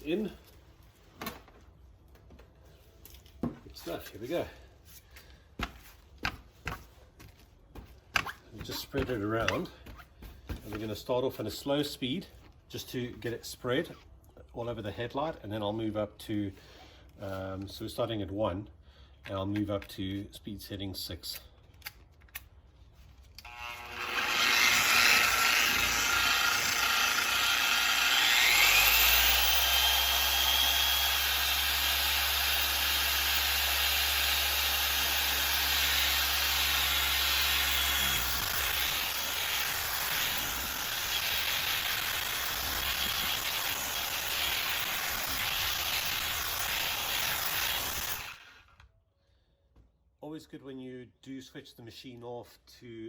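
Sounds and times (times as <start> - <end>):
polisher whining: 23.5 - 46.1.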